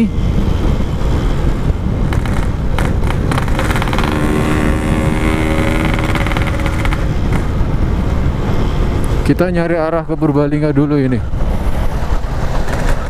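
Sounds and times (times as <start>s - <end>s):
wind rumbling on microphone: 0.0s - 13.0s
two-stroke motorcycle engine: 2.1s - 7.5s.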